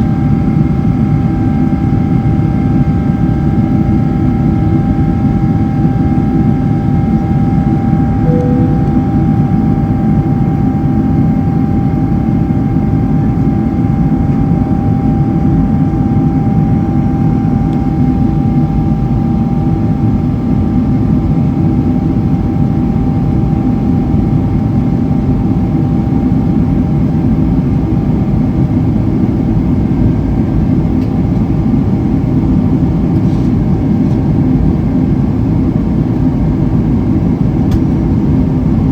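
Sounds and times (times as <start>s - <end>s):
jet engine whining tone: 5.4s - 10.5s.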